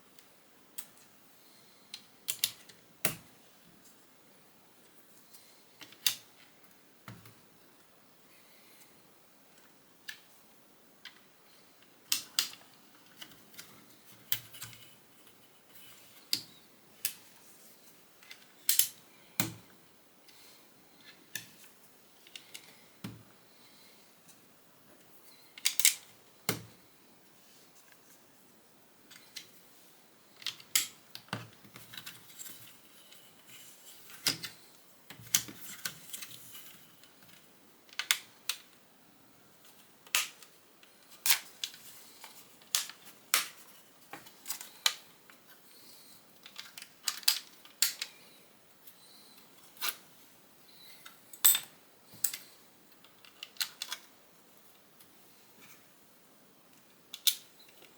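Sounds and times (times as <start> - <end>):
plastic bricks clicking and snapping: 37.2 - 38.7.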